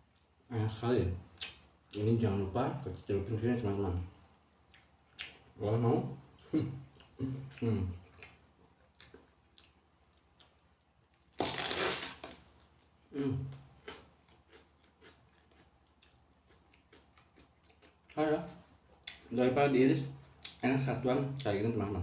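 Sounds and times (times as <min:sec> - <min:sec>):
quiet chewing: 0:00.0 - 0:00.5, 0:03.9 - 0:05.6, 0:06.2 - 0:11.3, 0:12.3 - 0:20.6
crunchy bite into raw vegetable: 0:11.4 - 0:12.4.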